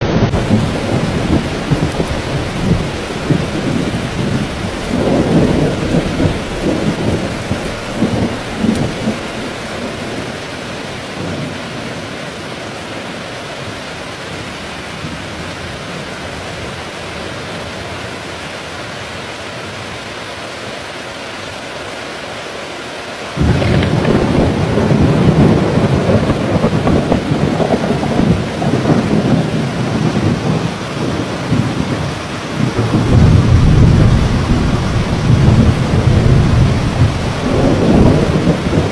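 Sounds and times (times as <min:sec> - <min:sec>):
loud thunderclap: 0:00.0 - 0:11.6, 0:23.4 - 0:38.9
thunder rumbling: 0:00.0 - 0:12.0, 0:23.4 - 0:38.9
heavy rain: 0:00.0 - 0:38.9.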